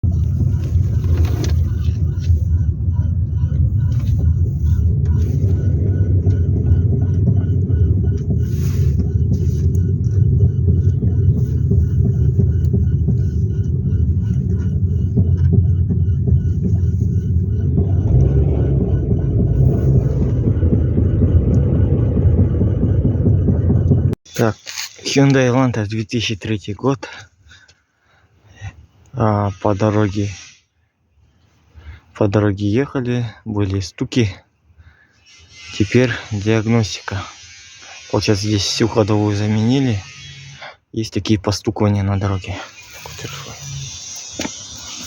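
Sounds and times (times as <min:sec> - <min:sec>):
road and engine noise: 0:00.0 - 0:25.7.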